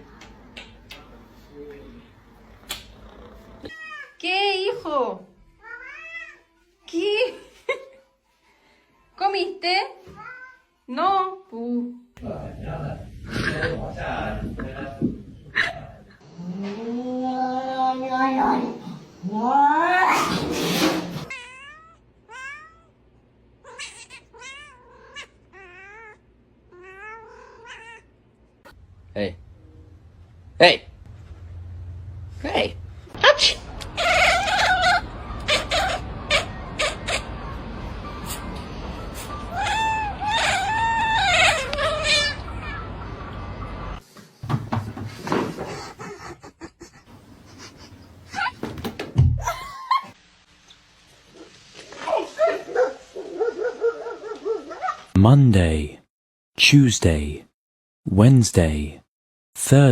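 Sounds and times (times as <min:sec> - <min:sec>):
cat crying: 0:03.7 - 0:04.2, 0:05.6 - 0:06.5, 0:21.3 - 0:22.9, 0:23.6 - 0:28.1, 0:33.8 - 0:37.6, 0:39.2 - 0:43.3
knocks: 0:44.4 - 0:45.8.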